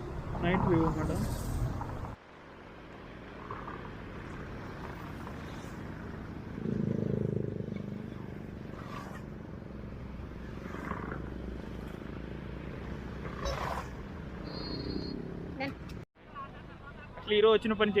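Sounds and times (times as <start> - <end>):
road traffic hum: 0.0 - 18.0
vehicle passing by: 2.8 - 15.6.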